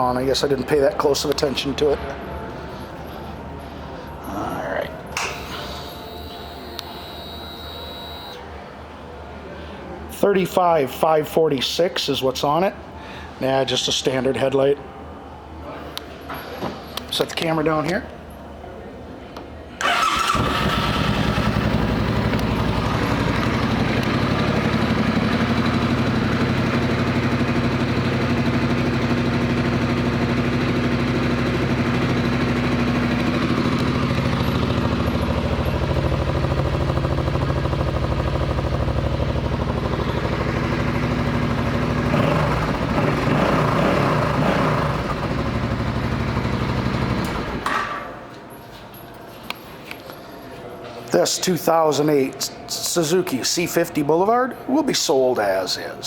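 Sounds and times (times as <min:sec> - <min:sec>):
motorcycle engine idling: 0:19.9 - 0:47.6.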